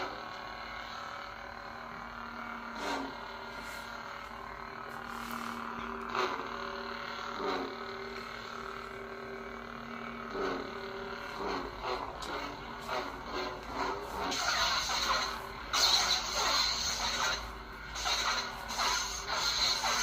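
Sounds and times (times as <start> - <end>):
lightsaber electric hum: 0.0 - 20.0
lightsaber swing and clash effects: 11.4 - 20.0.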